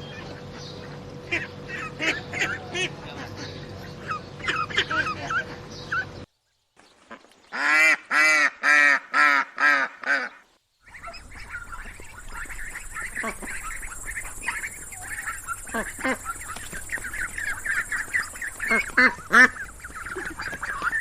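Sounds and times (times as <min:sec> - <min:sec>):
ducks quacking: 0:00.0 - 0:06.2, 0:07.0 - 0:21.0
steady hiss: 0:11.0 - 0:19.9.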